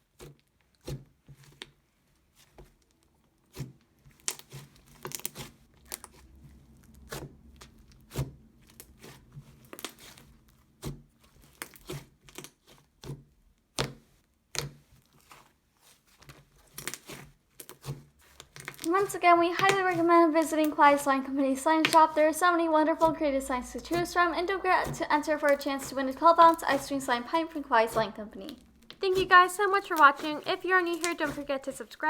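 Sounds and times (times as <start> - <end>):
slime squishing and popping: 6.9 - 15.4, 16.6 - 20.7, 21.8 - 22.2, 23.9 - 32.0.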